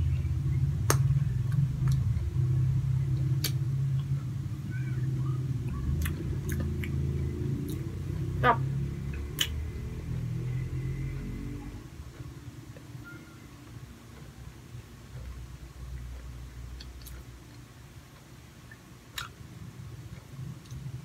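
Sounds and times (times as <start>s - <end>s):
low steady hum: 0.0s - 21.0s
mouth clicks and smacks: 3.2s - 4.1s, 9.1s - 9.6s, 18.6s - 19.4s.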